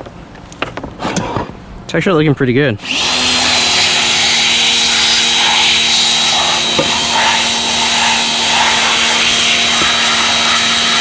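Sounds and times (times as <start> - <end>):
electric machine whining: 2.8 - 11.0.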